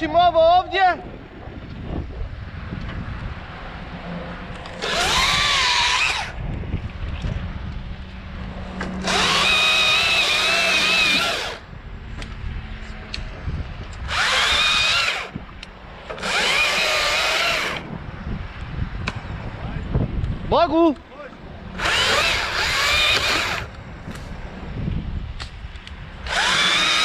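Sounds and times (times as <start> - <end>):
wind rumbling on microphone: 0.0 - 27.0
chainsaw cutting branches: 4.7 - 6.4, 8.8 - 11.7, 14.0 - 15.4, 16.1 - 17.9, 21.8 - 24.2, 26.2 - 27.0.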